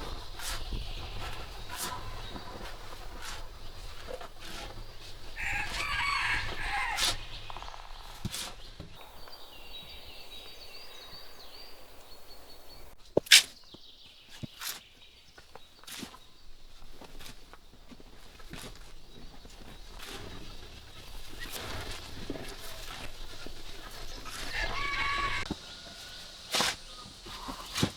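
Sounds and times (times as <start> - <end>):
rooster crowing: 5.3 - 8.0, 24.4 - 26.4.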